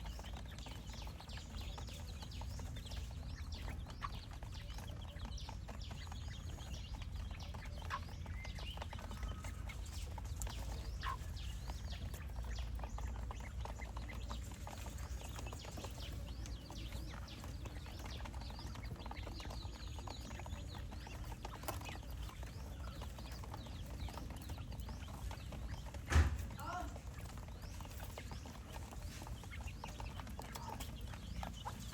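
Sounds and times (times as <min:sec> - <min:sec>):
quail chirping and calling: 0:00.0 - 0:31.9.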